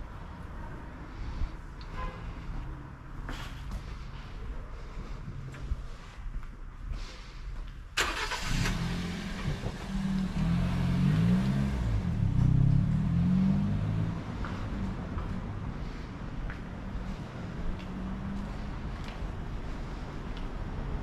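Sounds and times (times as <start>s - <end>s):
car engine: 8.0s - 20.0s.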